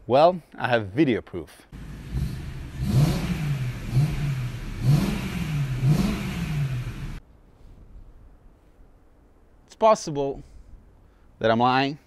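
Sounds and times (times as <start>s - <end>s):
car engine revving: 1.8s - 7.2s.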